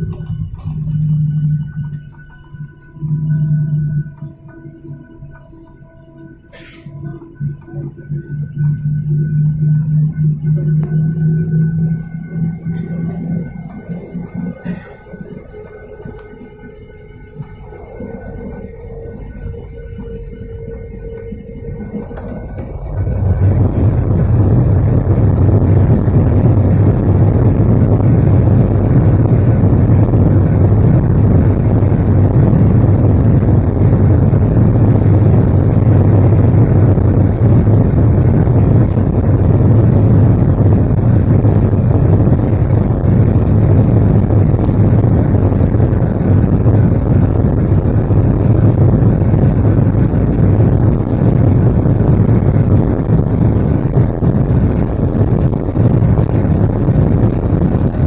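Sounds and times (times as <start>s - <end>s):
jet engines roaring: 0.0s - 58.0s.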